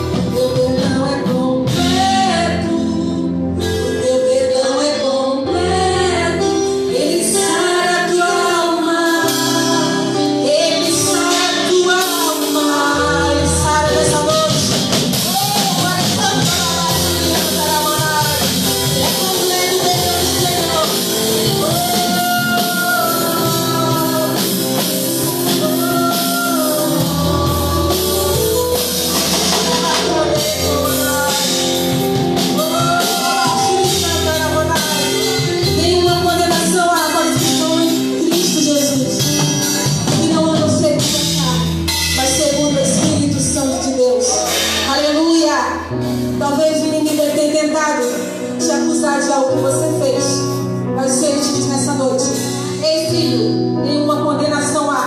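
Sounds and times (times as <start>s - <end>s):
band with drum kit: 0.0s - 55.0s
singer leading a melody: 0.0s - 55.0s.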